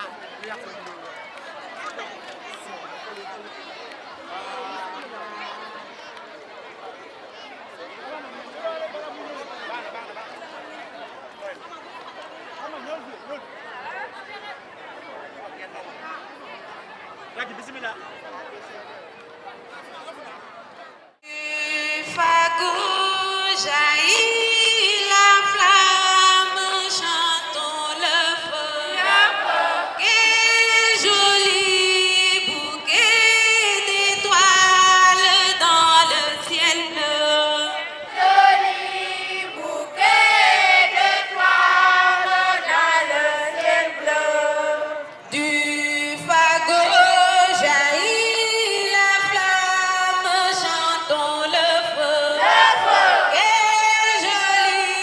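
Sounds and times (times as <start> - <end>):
choir chanting: 26.4 - 31.6, 33.8 - 48.9, 51.6 - 55.0.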